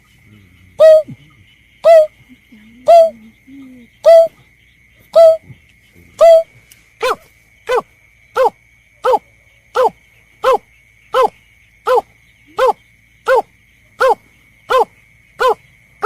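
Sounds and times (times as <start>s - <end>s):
snipe lure call: 0.8s - 1.2s, 1.8s - 2.2s, 2.8s - 3.3s, 4.0s - 4.4s, 5.1s - 5.4s, 6.2s - 7.8s.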